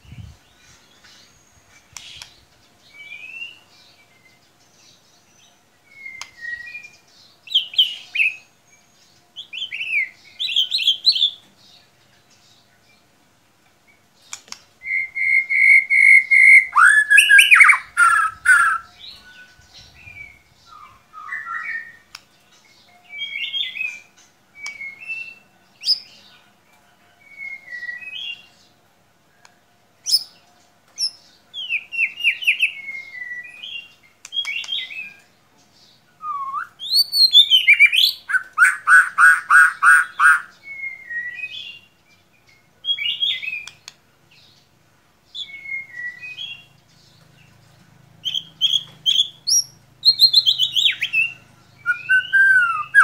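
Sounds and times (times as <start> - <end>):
bird singing whistled phrases: 3.0 - 3.6, 5.9 - 8.5, 14.8 - 22.1, 24.6 - 26.0, 27.3 - 28.5, 31.6 - 35.2, 36.2 - 41.9, 45.4 - 46.7, 48.3 - 53.0.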